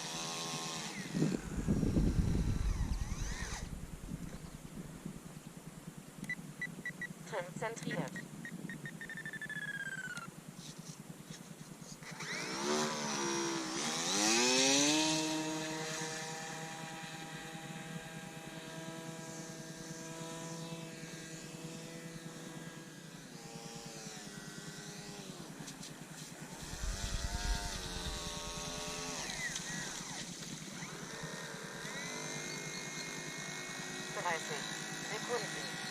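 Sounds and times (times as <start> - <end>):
model plane motor buzzing: 0.0 - 4.8, 12.0 - 35.9
wind rumble on microphone: 1.1 - 5.4, 26.6 - 29.7.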